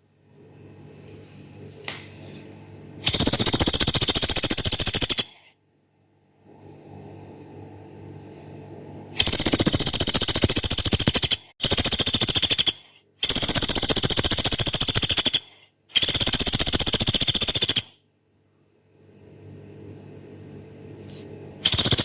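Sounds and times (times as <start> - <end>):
woodpecker rattling calls: 3.1 - 5.4, 9.2 - 17.9, 21.6 - 22.0.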